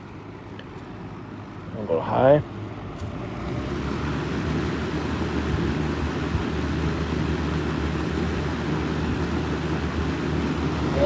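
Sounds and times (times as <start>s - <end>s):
fan air rushing: 0.0s - 11.0s
low motor hum: 2.4s - 11.0s.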